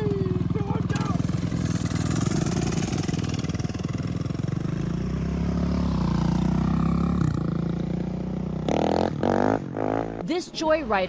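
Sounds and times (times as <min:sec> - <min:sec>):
small engine running: 0:00.0 - 0:08.2.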